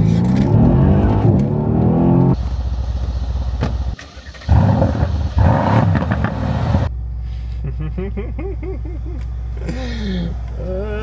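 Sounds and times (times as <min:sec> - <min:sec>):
car engine accelerating hard: 0:00.0 - 0:02.4.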